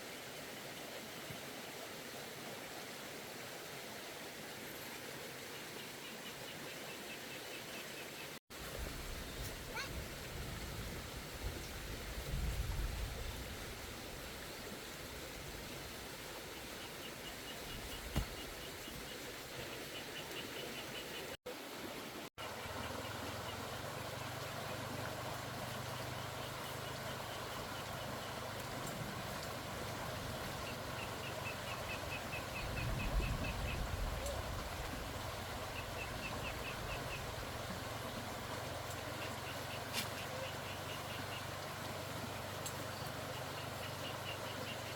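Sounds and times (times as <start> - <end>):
outdoor noise: 0.0 - 44.9.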